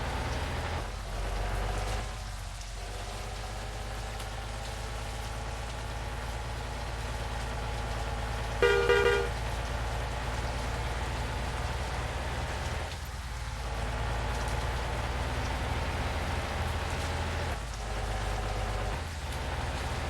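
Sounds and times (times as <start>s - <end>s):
vehicle engine drone: 0.0s - 20.0s
vehicle horn blast: 8.6s - 9.4s.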